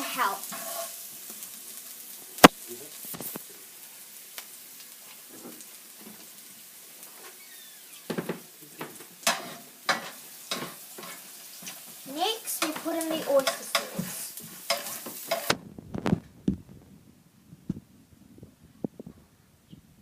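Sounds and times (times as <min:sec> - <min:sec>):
spatula scraping a pan: 0:00.0 - 0:01.4, 0:09.2 - 0:15.6
garlic sizzling in oil: 0:00.0 - 0:16.2.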